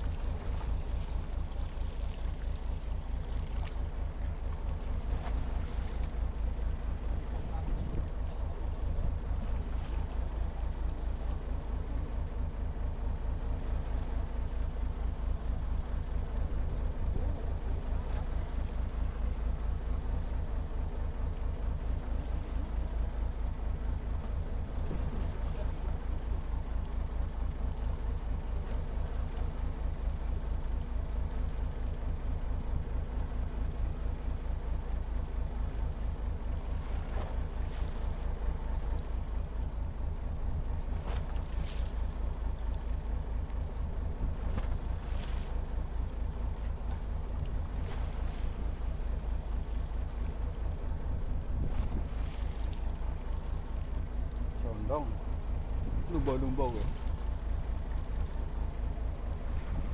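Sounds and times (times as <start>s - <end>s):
boat engine chugging: 0.0s - 59.9s.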